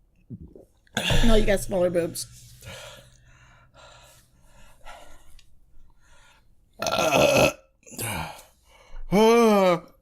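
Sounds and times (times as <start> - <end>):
person burping: 0.9 - 1.5, 6.8 - 8.4, 9.1 - 10.0.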